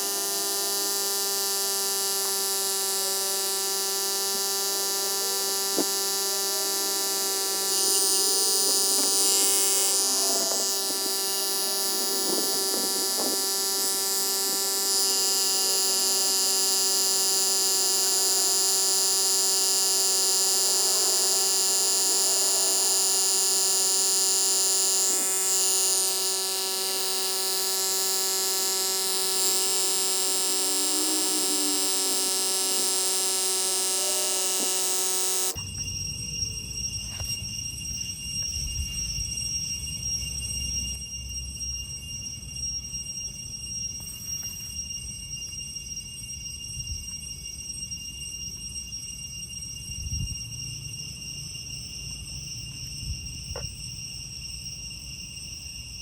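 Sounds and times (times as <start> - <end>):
electric air pump hum: 0.0 - 36.1.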